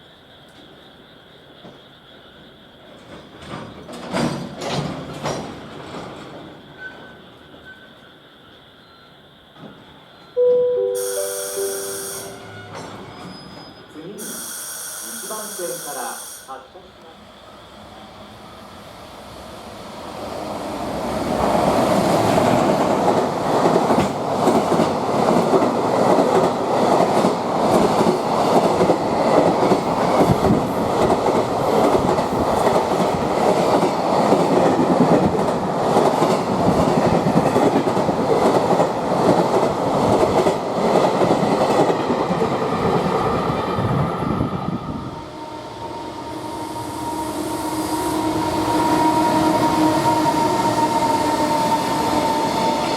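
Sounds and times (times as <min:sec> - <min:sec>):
freight train wheels clattering: 0:03.0 - 0:07.2.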